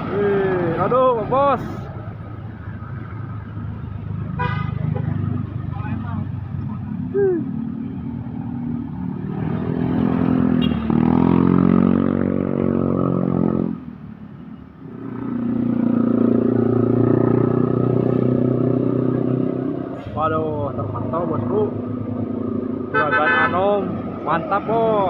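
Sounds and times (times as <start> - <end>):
heavy truck engines running: 16.9 - 23.0.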